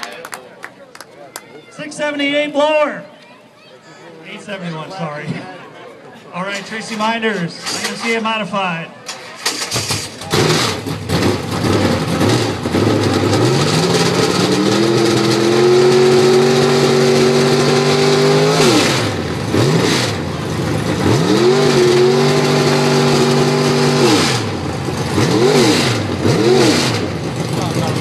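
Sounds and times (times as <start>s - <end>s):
race car engine revving: 9.1s - 28.0s.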